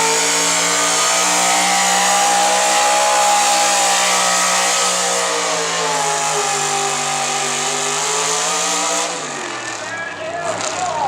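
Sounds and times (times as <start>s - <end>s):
truck engine at high revs: 0.0s - 11.0s.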